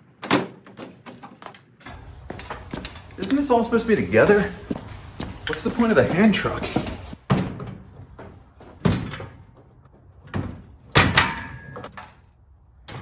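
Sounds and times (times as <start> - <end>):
metal parts knocking and clanking: 1.9 - 4.7.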